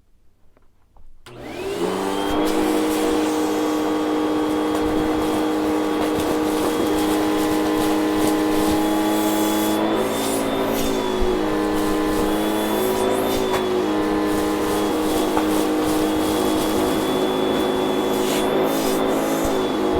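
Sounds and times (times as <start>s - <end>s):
vacuum cleaner motor whining: 1.3s - 19.9s.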